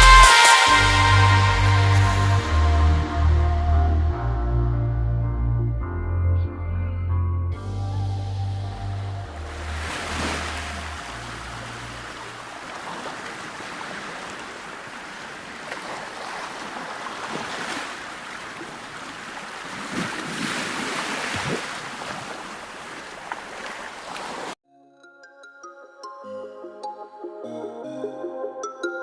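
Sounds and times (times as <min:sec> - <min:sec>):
bass note from music: 0:00.0 - 0:12.0
ocean waves breaking: 0:09.3 - 0:24.6.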